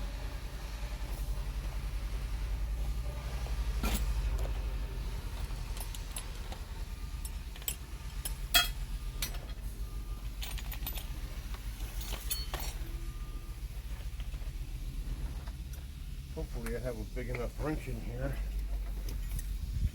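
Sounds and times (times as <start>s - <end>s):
metal tools clinking in toolbox: 3.8s - 4.5s, 5.4s - 9.6s, 10.3s - 13.1s.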